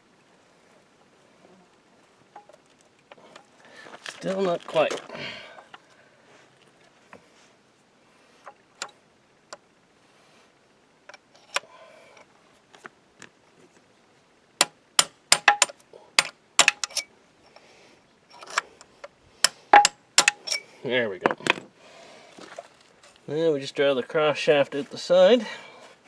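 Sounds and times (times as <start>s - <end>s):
hammer striking metal punch: 19.8s - 20.4s.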